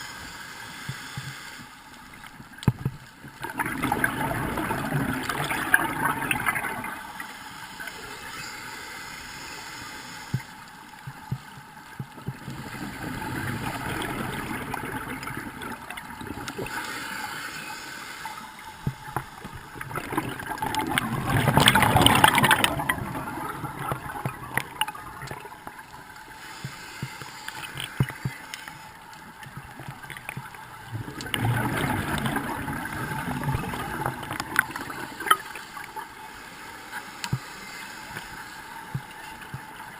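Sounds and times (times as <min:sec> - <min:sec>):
bubbling water: 0:02.2 - 0:07.2, 0:10.4 - 0:16.9, 0:18.6 - 0:26.3, 0:29.3 - 0:36.2.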